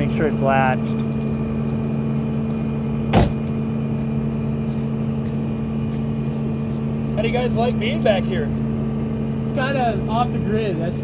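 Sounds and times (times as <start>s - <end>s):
truck engine idling: 0.0s - 11.0s
truck hood slamming shut: 3.1s - 3.6s.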